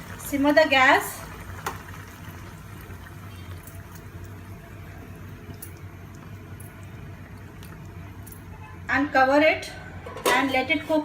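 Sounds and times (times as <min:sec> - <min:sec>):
gravy simmering and bubbling: 0:00.0 - 0:08.8.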